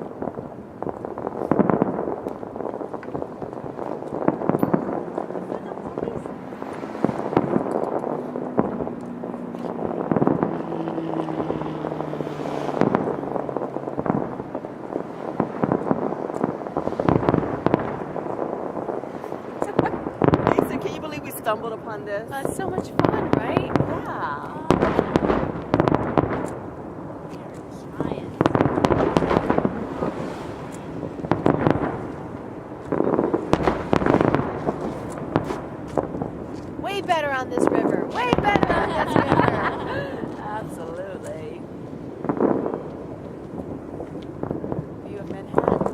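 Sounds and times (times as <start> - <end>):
fireworks booming and crackling: 0.0 - 45.9.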